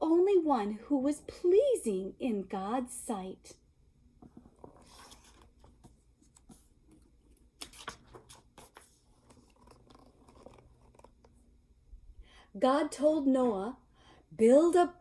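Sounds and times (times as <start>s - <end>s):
book pages rustling: 4.2s - 11.5s.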